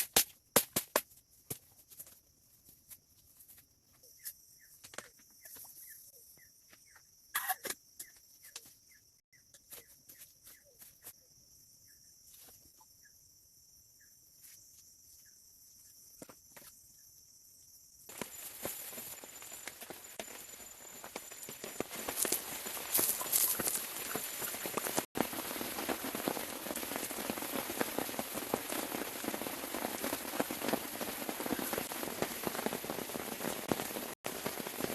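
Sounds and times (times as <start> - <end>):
faint bird chirps: 3.9 - 24.7
steady high hiss: 18.1 - 34.9.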